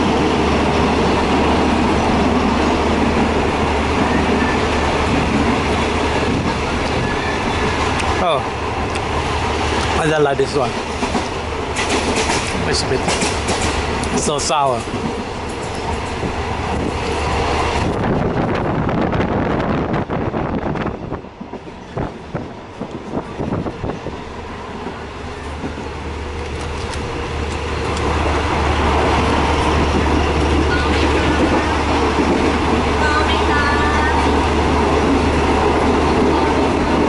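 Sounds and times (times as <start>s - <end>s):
train wheels rumbling on rails: 0.0s - 37.0s
train wheels clacking: 4.0s - 18.0s.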